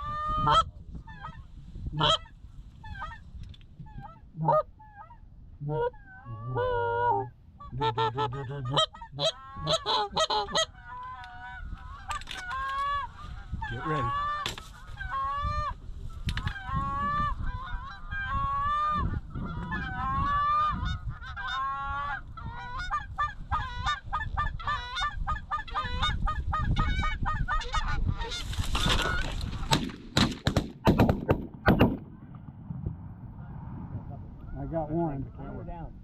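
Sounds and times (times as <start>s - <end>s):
goose honking and clucking: 0.0s - 15.8s, 16.4s - 29.5s
shotgun shots: 29.7s - 32.2s.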